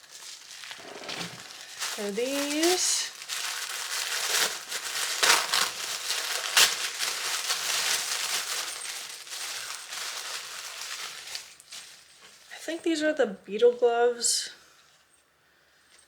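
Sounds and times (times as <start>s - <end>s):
packaging crinkling: 0.0s - 12.5s.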